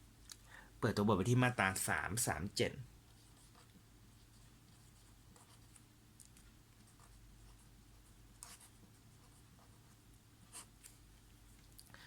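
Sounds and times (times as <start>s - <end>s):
low room hum: 0.0s - 12.0s
pen scratching paper: 8.4s - 9.9s.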